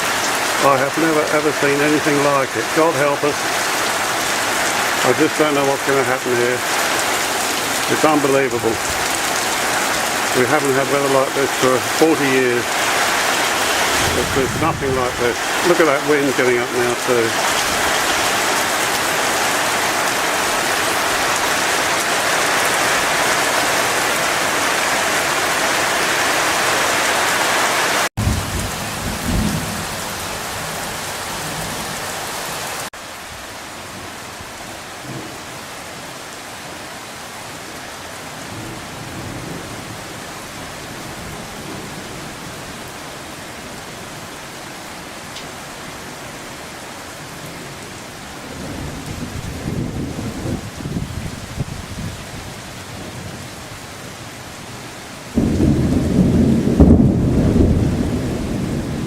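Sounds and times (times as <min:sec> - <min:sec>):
torrential rain pouring: 0:00.0 - 0:59.0
low rumble of thunder: 0:13.4 - 0:16.1, 0:28.2 - 0:30.3, 0:48.3 - 0:53.5, 0:55.4 - 0:59.0.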